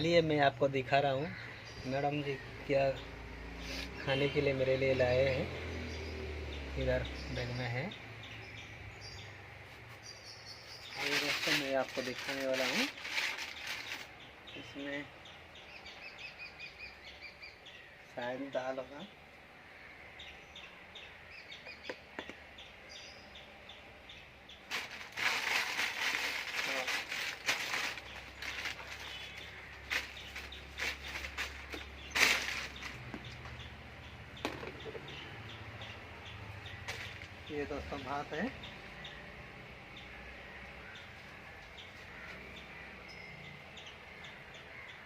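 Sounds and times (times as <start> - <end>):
bird chirping: 0.0 - 45.0
faint outdoor background noise: 0.0 - 45.0
food bag rustling: 11.0 - 14.1, 24.7 - 33.0.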